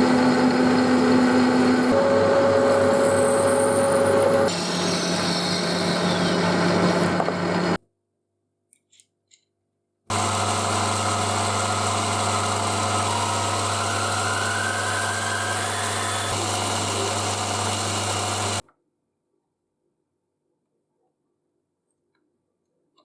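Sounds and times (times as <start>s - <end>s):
workshop machine humming: 0.0s - 7.8s, 10.1s - 18.6s.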